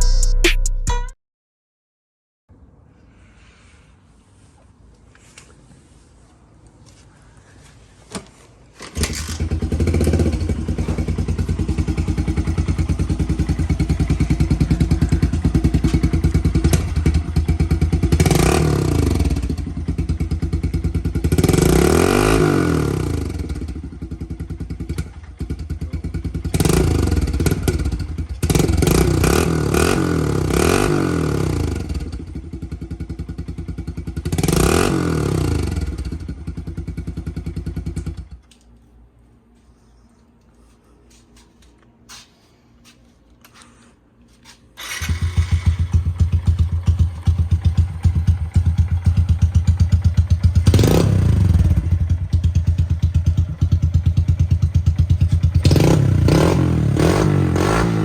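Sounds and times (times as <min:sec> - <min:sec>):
motorbike engine idling and revving: 0:08.9 - 0:38.4, 0:44.8 - 0:58.0.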